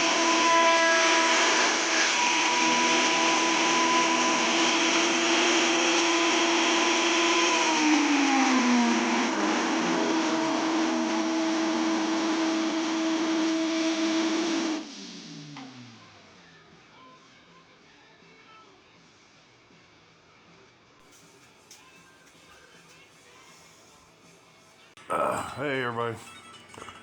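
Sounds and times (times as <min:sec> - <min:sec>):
woodworking power tool whining: 0:00.0 - 0:13.2.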